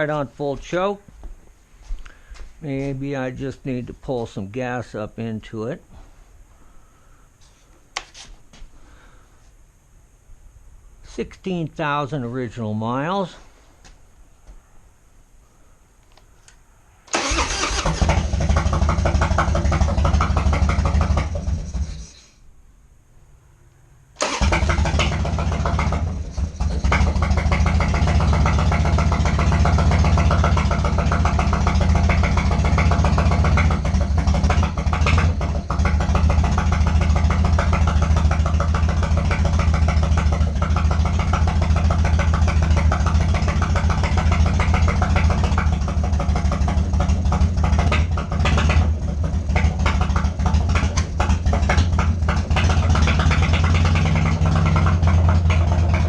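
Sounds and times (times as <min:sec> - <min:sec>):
motorcycle engine idling: 0:17.2 - 0:22.1, 0:24.3 - 0:56.0.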